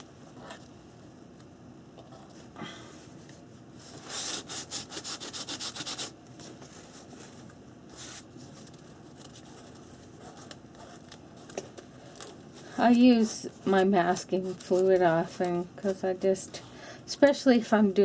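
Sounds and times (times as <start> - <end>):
fingers rubbing paper: 4.1 - 6.1.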